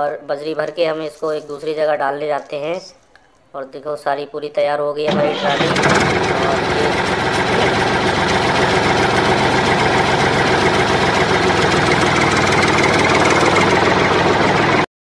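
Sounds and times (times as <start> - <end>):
tractor engine idling: 5.1 - 14.9.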